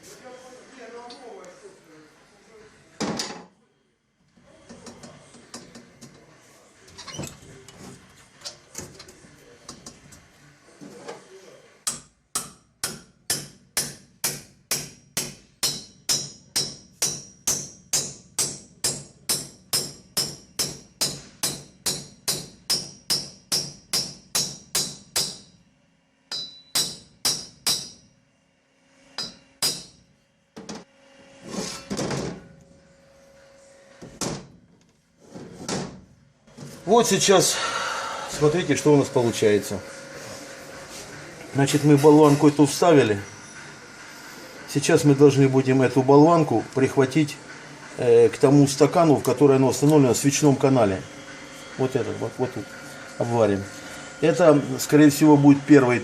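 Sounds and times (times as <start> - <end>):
hammer tapping metal: 11.8 - 25.5, 26.3 - 28.0, 29.2 - 30.0.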